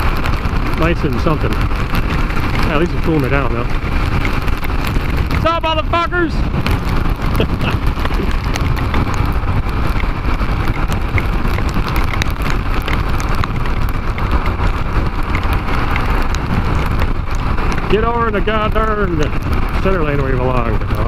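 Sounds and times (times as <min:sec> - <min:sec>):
motorcycle engine: 0:00.0 - 0:21.0
raindrops ticking: 0:00.0 - 0:21.0
wind rumble: 0:00.0 - 0:21.0.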